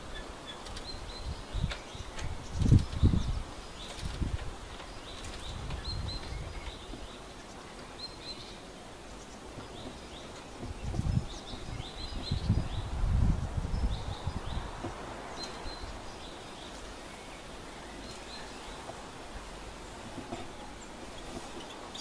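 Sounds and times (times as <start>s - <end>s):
small birds chirping: 0.0s - 22.0s
low rumbles on microphone: 9.6s - 16.4s.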